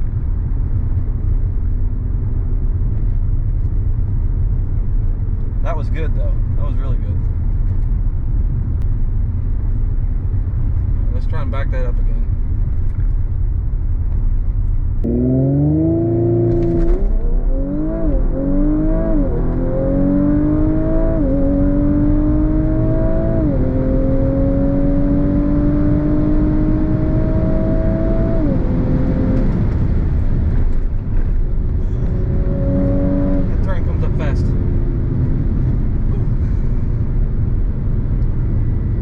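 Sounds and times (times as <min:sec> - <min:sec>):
car engine accelerating hard: 0:15.0 - 0:39.0.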